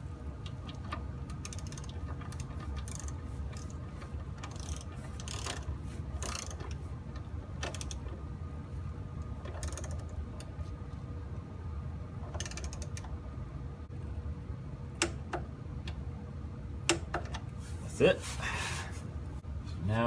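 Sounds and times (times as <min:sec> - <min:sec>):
torque wrench ratchet clicking: 0:01.3 - 0:03.8, 0:04.4 - 0:06.8, 0:07.6 - 0:08.0, 0:09.6 - 0:10.1, 0:12.4 - 0:13.0.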